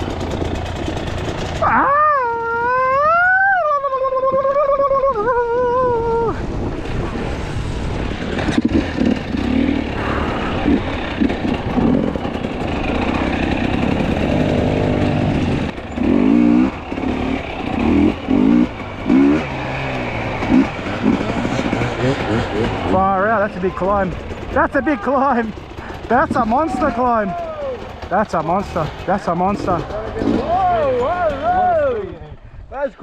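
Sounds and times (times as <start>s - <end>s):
dirt bike engine running: 0.0s - 3.3s, 5.2s - 32.2s.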